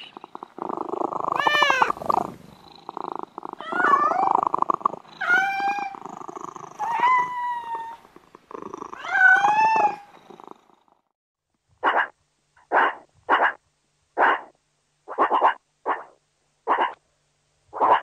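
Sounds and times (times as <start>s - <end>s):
cat purring: 0.0s - 11.1s
cat meowing: 1.3s - 2.0s, 3.6s - 4.6s, 5.2s - 6.0s, 6.7s - 8.1s, 9.0s - 10.1s.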